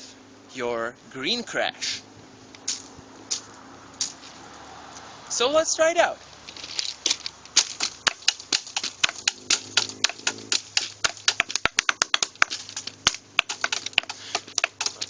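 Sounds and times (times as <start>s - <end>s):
sticks drumming on rock and wood: 7.1s - 15.0s.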